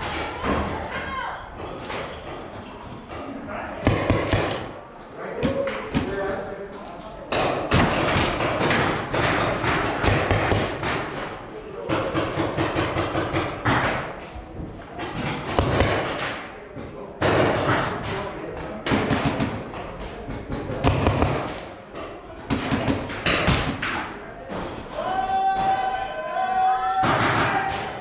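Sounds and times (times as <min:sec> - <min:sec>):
paintball markers firing: 0:03.8 - 0:04.8, 0:07.3 - 0:11.2, 0:15.2 - 0:16.4, 0:20.7 - 0:21.7
paintballs smacking walls: 0:07.3 - 0:14.2, 0:14.9 - 0:16.6, 0:17.2 - 0:25.0
distant shouting: 0:24.9 - 0:28.0.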